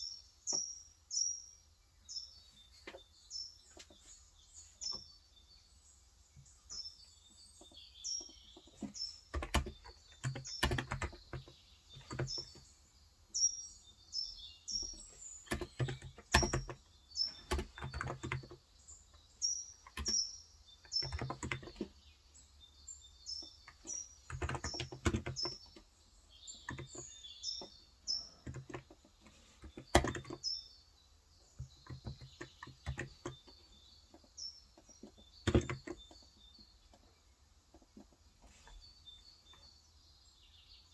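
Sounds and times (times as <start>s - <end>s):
small birds chirping: 0.0s - 40.9s
typing on a keyboard: 8.7s - 12.6s, 15.4s - 18.6s, 19.8s - 20.2s, 20.8s - 21.9s, 23.7s - 25.9s, 26.6s - 27.7s, 28.4s - 30.4s, 31.6s - 33.6s, 34.8s - 36.3s.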